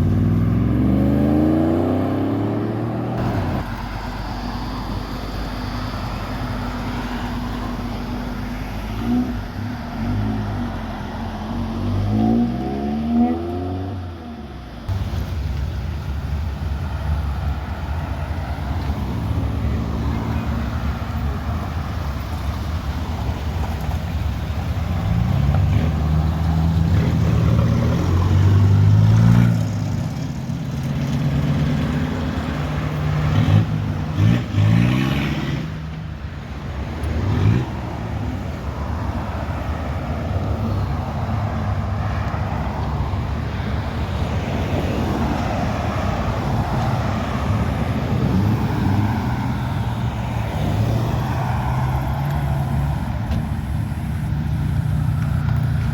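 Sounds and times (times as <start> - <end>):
engine revs: 0.0 - 14.2, 18.8 - 35.9, 36.9 - 38.4
car engines driving off: 0.0 - 55.9.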